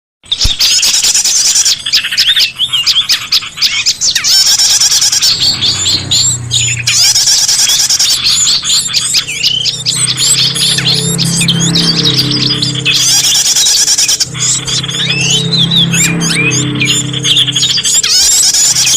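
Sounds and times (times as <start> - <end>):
songbirds chirping and trilling: 0.2 - 18.9.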